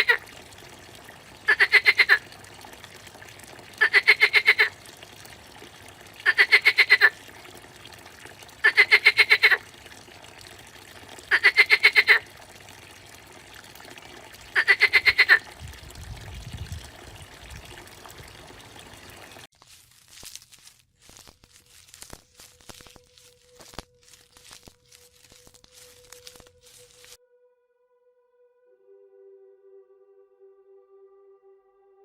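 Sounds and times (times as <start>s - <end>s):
frog croaking: 0.0s - 0.3s, 1.5s - 2.3s, 3.8s - 4.8s, 6.2s - 7.2s, 8.6s - 9.6s, 11.3s - 12.3s, 14.5s - 15.5s.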